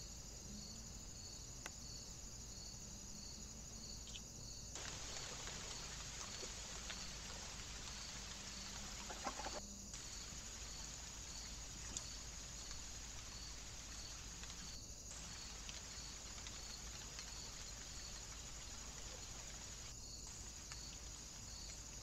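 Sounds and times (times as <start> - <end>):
insect chirping: 0.0 - 22.0
microphone hiss: 0.0 - 22.0
bird calls: 4.8 - 10.4.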